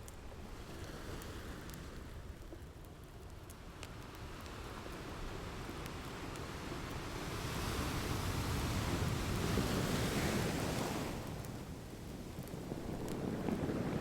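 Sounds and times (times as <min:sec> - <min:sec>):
wood fire crackling: 0:11.9 - 0:14.0.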